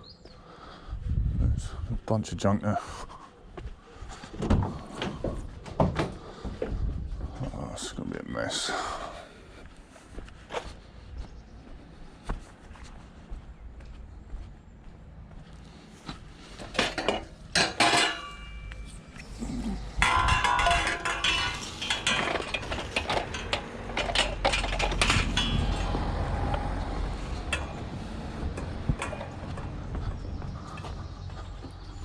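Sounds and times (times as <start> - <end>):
scrap metal clanking and rattling: 16.5 - 32.0.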